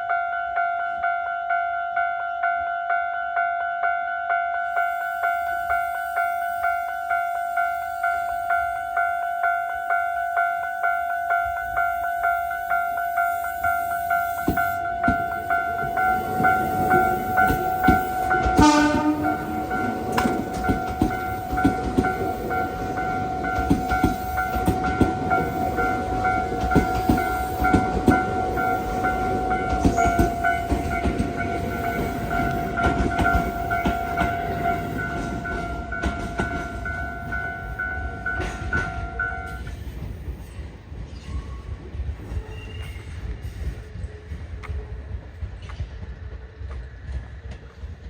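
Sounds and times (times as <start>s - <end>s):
electric train passing: 4.6s - 48.0s.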